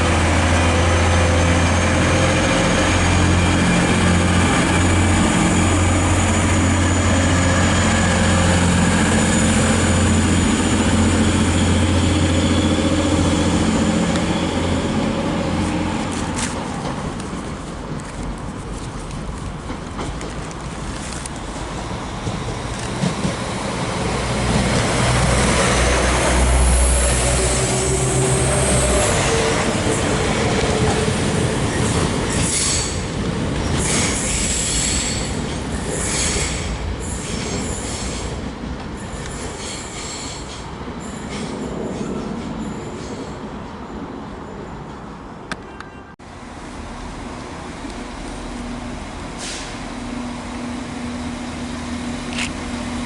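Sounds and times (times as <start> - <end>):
train passing drone: 0.0 - 45.4, 46.2 - 53.0
train wheel squeal: 30.8 - 38.4, 39.0 - 43.5.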